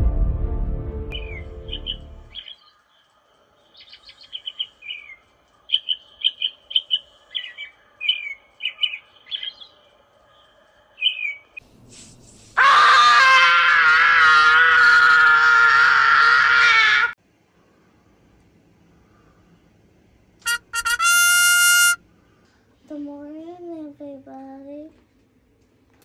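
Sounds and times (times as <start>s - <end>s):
birds chirping: 1.2s - 2.8s
boy screaming: 12.6s - 17.2s.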